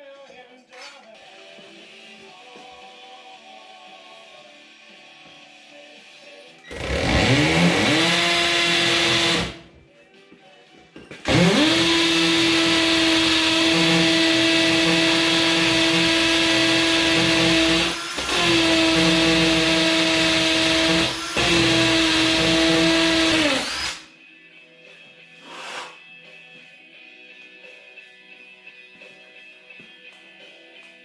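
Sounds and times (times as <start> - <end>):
electric drill boring masonry: 6.7 - 9.6, 11.3 - 24.0.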